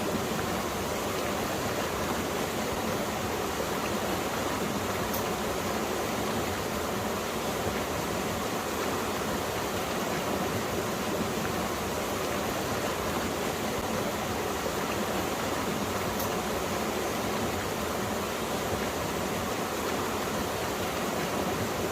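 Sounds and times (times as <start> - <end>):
stream flowing: 0.0 - 21.9.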